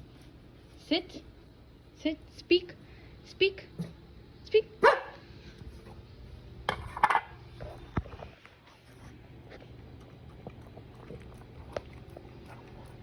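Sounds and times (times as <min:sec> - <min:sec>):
dog barking: 0:04.8 - 0:05.2.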